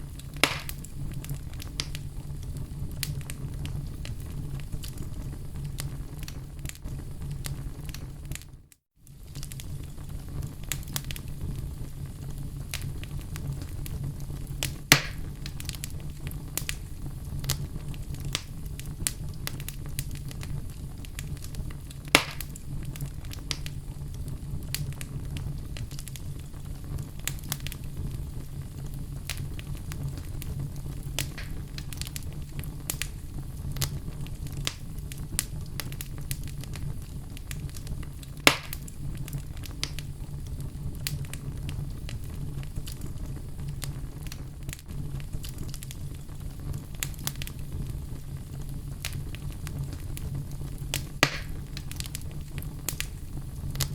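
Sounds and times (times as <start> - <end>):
wood fire crackling: 0.0 - 53.9
loud pops: 0.2 - 0.9, 14.9 - 15.3, 22.1 - 22.6, 31.2 - 31.8, 38.4 - 38.8, 51.2 - 51.7.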